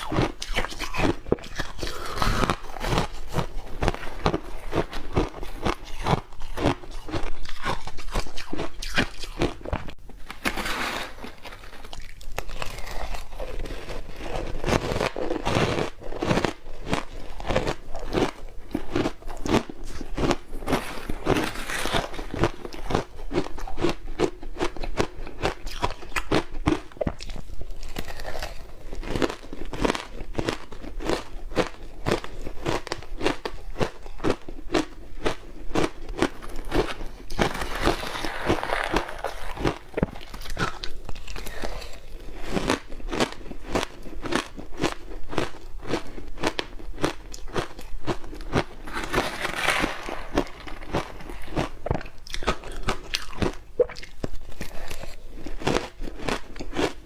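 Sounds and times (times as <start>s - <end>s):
ice being chewed crunching: 0.0s - 10.0s, 10.8s - 57.0s.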